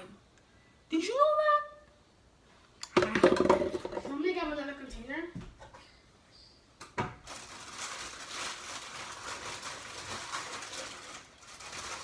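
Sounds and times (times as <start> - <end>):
household objects rustling and rattling: 3.0 - 4.3, 7.0 - 12.0.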